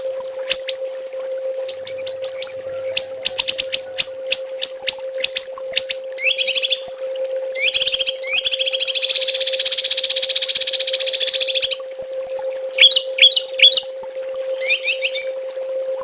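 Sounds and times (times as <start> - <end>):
songbird whistled calls: 0.0 - 0.8, 1.7 - 6.9, 7.6 - 11.8, 12.8 - 13.9, 14.6 - 15.4
bird buzzy trills: 0.0 - 0.9, 1.6 - 11.9, 12.7 - 15.5
faint steady hum: 0.0 - 16.0.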